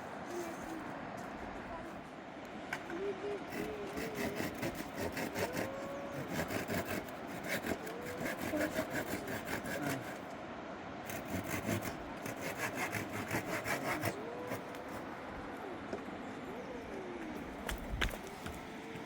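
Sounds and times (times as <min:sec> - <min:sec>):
hand saw cutting wood: 0:03.5 - 0:10.3, 0:11.1 - 0:15.1.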